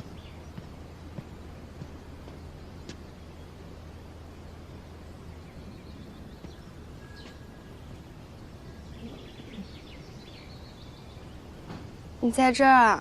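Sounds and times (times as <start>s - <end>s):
distant bird chirps: 0.0s - 13.0s
steady low hum: 0.0s - 13.0s
bird twittering: 4.4s - 12.0s.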